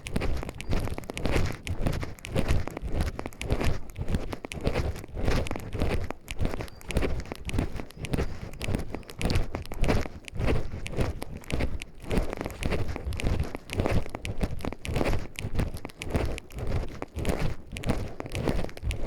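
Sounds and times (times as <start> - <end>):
footsteps crunching on forest path: 0.0 - 19.0.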